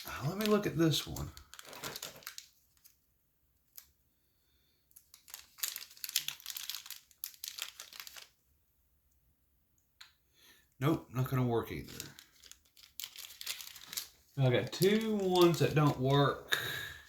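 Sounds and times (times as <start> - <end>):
rustling and crinkling: 0.0 - 3.0, 4.9 - 8.4, 11.8 - 16.5.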